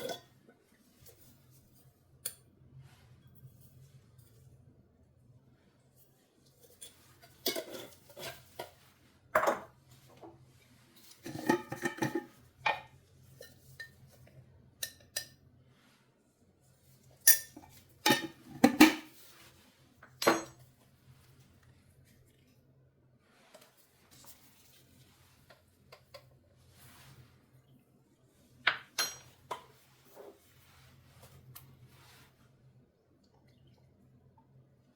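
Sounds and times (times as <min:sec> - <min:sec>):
dishes and cutlery clattering: 0:00.0 - 0:00.4, 0:06.7 - 0:08.8, 0:11.2 - 0:14.0, 0:20.2 - 0:20.7, 0:28.7 - 0:29.7.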